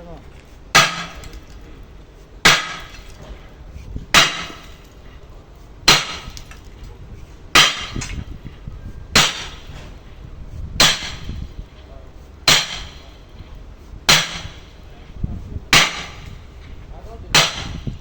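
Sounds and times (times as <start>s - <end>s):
hammer striking steel: 0.7s - 1.6s, 2.4s - 3.4s, 4.1s - 5.0s, 5.9s - 6.6s, 7.6s - 8.2s, 9.2s - 10.0s, 10.8s - 11.5s, 12.4s - 13.2s, 14.1s - 14.8s, 15.7s - 16.4s, 17.3s - 18.0s.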